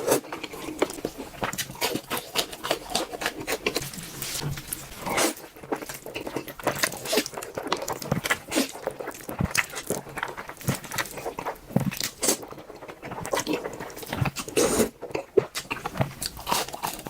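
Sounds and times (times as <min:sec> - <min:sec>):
slurping noodles: 0:00.0 - 0:10.0, 0:13.2 - 0:15.0.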